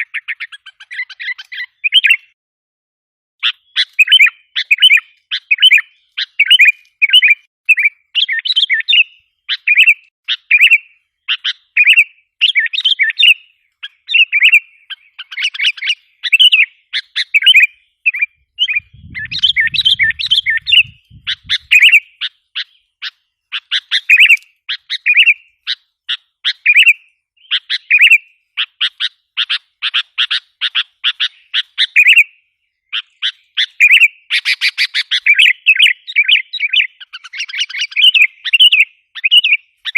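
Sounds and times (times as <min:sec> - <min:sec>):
bulbul chirping rapidly: 0:12.9 - 0:22.8.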